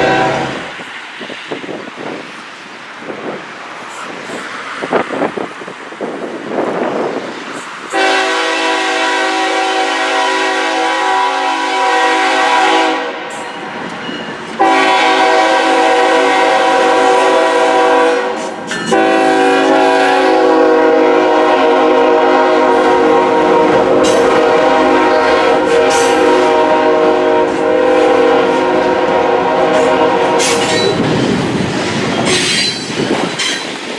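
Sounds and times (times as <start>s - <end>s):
locomotive air horn chord: 0.0s - 0.8s, 8.0s - 13.4s, 14.6s - 31.0s
rolling train noise: 0.0s - 33.9s.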